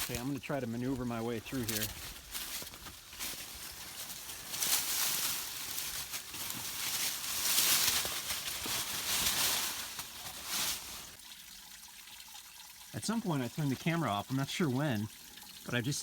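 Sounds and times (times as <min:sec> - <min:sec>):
branches and leaves rustling: 0:00.0 - 0:11.2.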